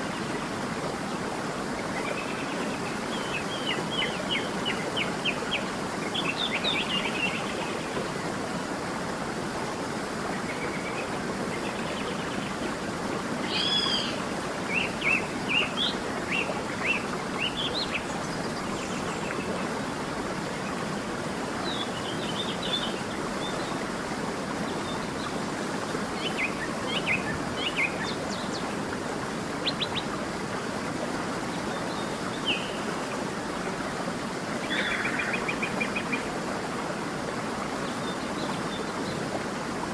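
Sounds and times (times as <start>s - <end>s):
wild birds chirping: 13.5s - 19.6s, 34.6s - 36.3s.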